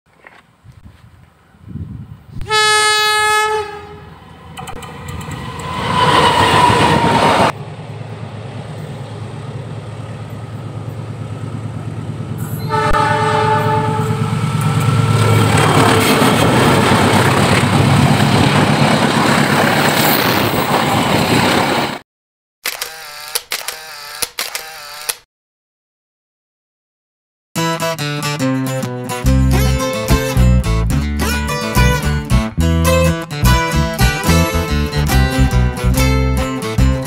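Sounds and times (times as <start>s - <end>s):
train rumble: 1.6s - 22.0s
locomotive horn blast: 2.4s - 4.4s, 12.4s - 14.4s.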